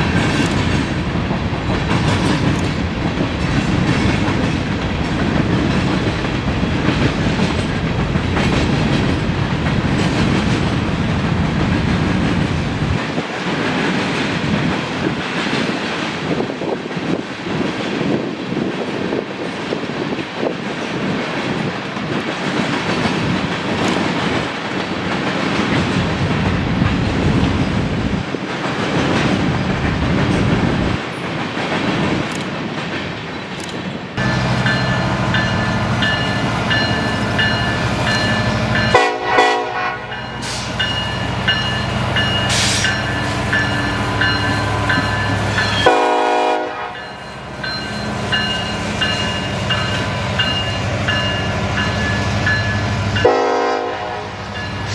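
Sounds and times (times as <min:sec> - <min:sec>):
train wheels on rails: 0:00.0 - 0:54.9
locomotive horn blasts: 0:38.9 - 0:40.6, 0:45.7 - 0:47.2, 0:53.2 - 0:54.4.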